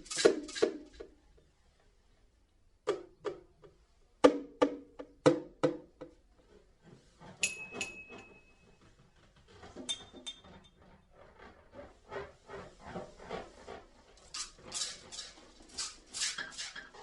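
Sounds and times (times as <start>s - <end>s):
high ringing tone: 7.4s - 8.7s.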